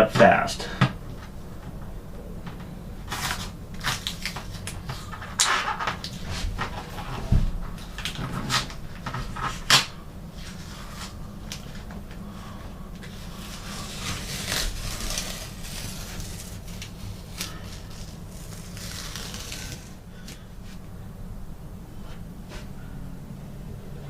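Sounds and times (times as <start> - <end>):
tape peeling and crumpling: 3.0 - 12.1, 13.0 - 20.8.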